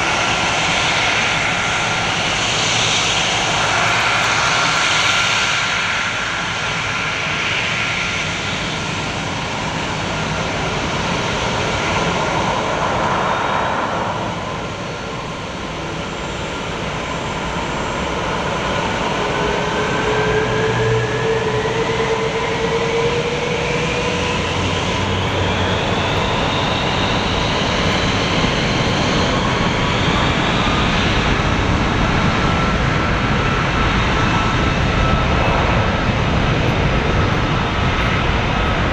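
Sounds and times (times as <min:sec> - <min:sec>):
jet engines at takeoff power: 0:00.0 - 0:38.9.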